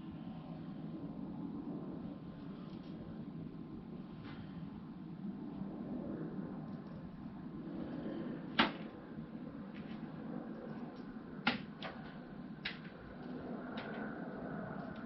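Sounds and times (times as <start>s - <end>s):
steady low hum: 0.0s - 15.0s
sharp knocks and clicks: 8.6s - 8.9s, 10.8s - 14.1s.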